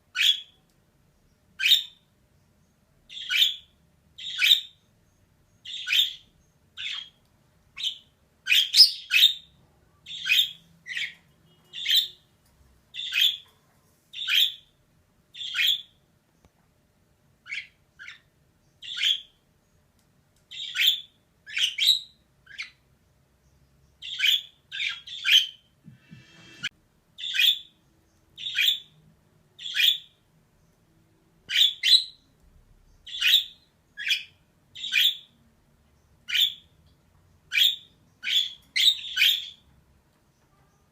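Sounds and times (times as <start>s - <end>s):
budgerigar chirping: 0.1s - 0.6s, 1.6s - 2.0s, 3.1s - 4.8s, 5.6s - 7.2s, 7.8s - 9.5s, 10.1s - 12.2s, 12.9s - 13.4s, 14.1s - 14.7s, 15.4s - 16.0s, 17.4s - 19.4s, 20.5s - 22.8s, 24.0s - 25.6s, 28.4s - 29.0s, 29.6s - 30.2s, 31.5s - 32.2s, 33.0s - 35.4s, 36.2s - 36.7s, 37.5s - 39.6s.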